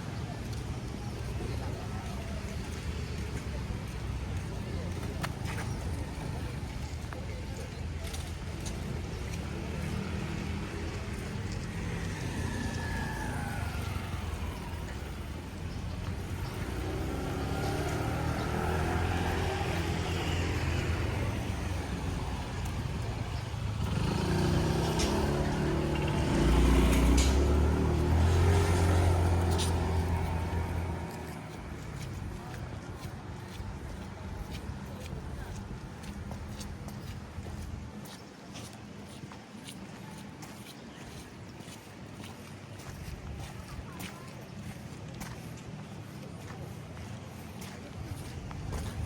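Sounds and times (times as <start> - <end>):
road traffic rumble: 0.0 - 49.0
motor vehicle passing by: 8.5 - 37.7.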